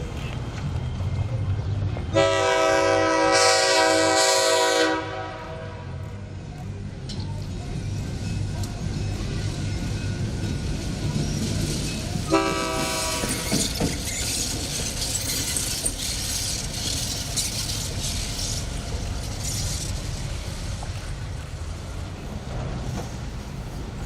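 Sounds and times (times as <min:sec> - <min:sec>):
diesel locomotive engine drone: 0:00.0 - 0:24.0
train rushing past: 0:00.0 - 0:24.0
train horn blast: 0:02.1 - 0:06.0, 0:12.3 - 0:13.5.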